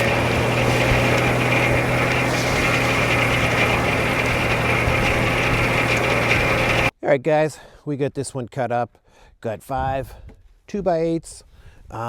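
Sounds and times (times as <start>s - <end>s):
sawmill engine running: 0.0s - 6.9s.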